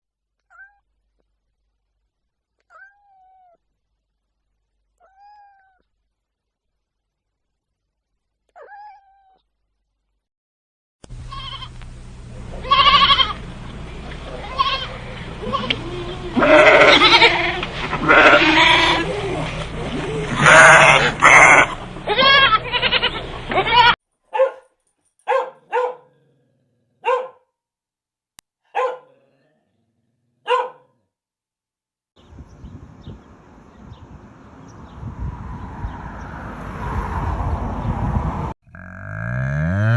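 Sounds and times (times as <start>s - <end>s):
low steady hum: 11.1s - 20.4s
sheep bleating: 11.3s - 11.7s, 12.6s - 13.4s, 14.3s - 19.5s, 20.3s - 24.0s, 38.7s - 39.9s
dog barking: 24.3s - 26.3s, 27.0s - 27.5s, 28.7s - 29.4s, 30.4s - 31.0s.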